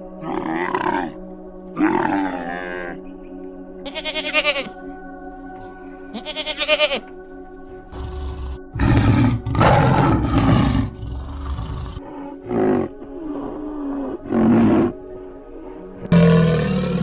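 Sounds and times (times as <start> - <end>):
background music: 0.0 - 17.0
goat bleating: 3.9 - 4.7, 6.1 - 7.1
tiger roaring: 7.9 - 15.0, 16.0 - 17.0.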